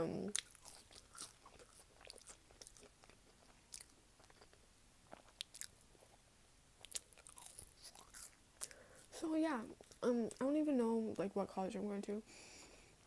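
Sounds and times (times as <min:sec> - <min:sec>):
crisp food crunches: 0:00.3 - 0:05.8, 0:06.8 - 0:08.8
chewing mouth sounds: 0:00.3 - 0:06.2, 0:06.8 - 0:08.8.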